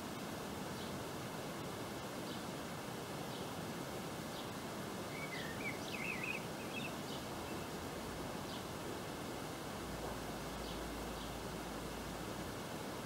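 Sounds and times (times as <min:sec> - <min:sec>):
steady hiss: 0:00.0 - 0:13.0
high bird twittering: 0:05.1 - 0:07.6
small bird chirping: 0:05.1 - 0:07.8.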